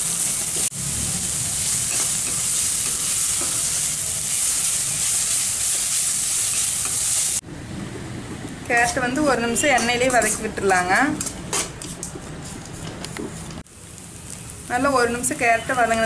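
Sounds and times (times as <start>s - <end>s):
vegetables sizzling in hot oil: 0.0s - 7.4s, 13.6s - 16.0s.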